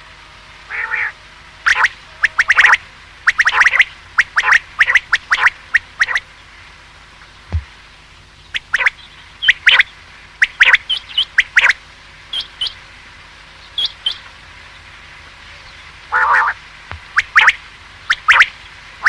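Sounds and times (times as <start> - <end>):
quail calling: 1.7 - 6.2, 8.6 - 12.8, 16.1 - 18.5.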